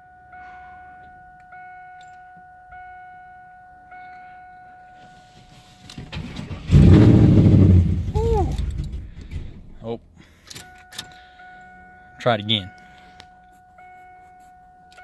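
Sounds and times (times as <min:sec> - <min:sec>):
starter cranking engine: 0:05.9 - 0:09.8.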